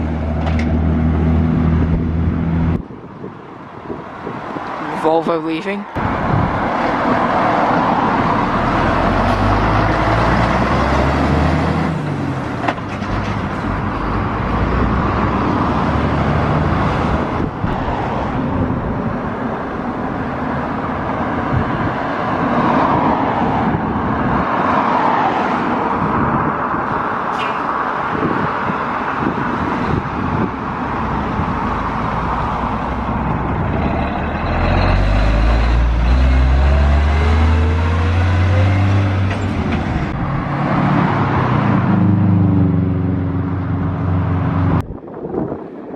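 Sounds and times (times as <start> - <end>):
loud heavy engine close by: 6.0 - 22.4, 26.8 - 44.8
lorry diesel engine pulling away: 31.0 - 42.4.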